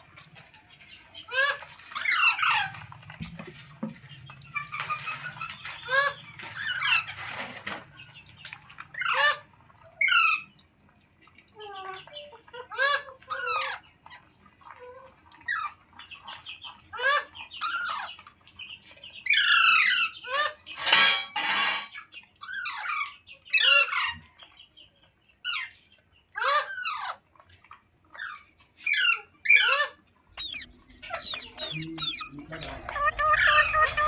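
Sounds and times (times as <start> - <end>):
parakeet screeching: 30.4 - 34.0.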